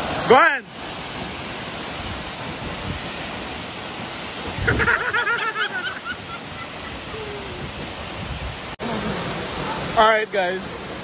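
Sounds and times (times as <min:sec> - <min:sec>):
waterfall roaring: 0:00.0 - 0:11.0
person yelling: 0:07.1 - 0:07.7.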